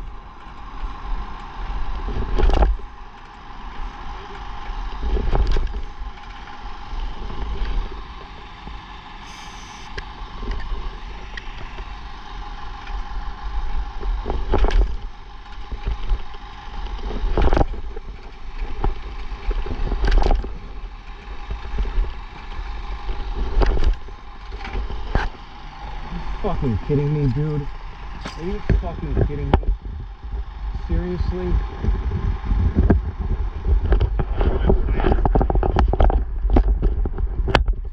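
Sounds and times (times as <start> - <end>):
steady low rumble: 9.9 - 37.4.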